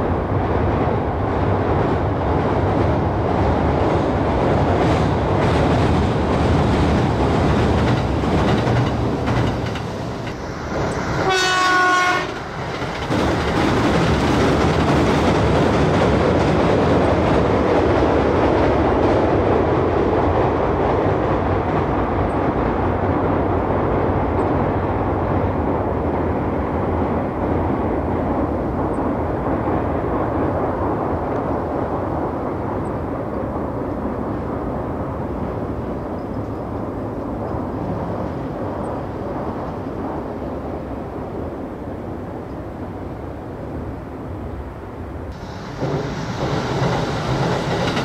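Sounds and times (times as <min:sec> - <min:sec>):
train rumbling along track: 0:00.0 - 0:48.0.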